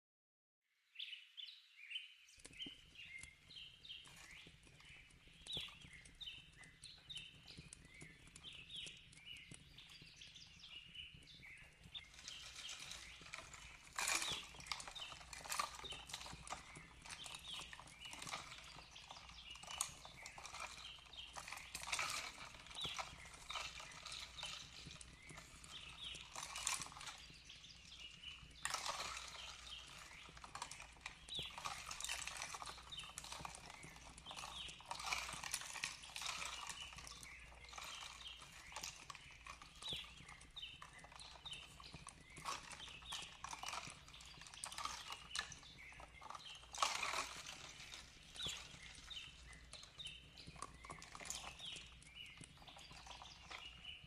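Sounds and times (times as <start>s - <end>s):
faint bird chirps: 0.9s - 54.0s
fireplace crackling and popping: 2.3s - 54.0s.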